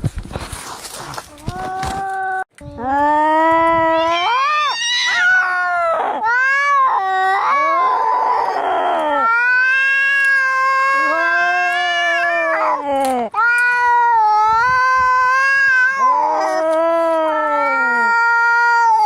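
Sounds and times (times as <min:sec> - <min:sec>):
cats yowling in a fight: 0:03.8 - 0:19.0.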